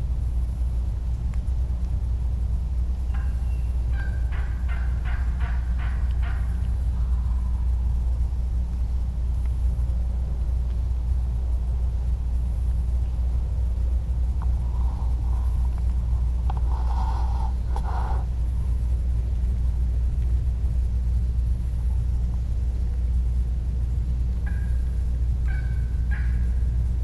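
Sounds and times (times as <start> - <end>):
steady low rumble: 0.0 - 27.0
turkey yelps: 3.1 - 6.6, 25.4 - 26.6.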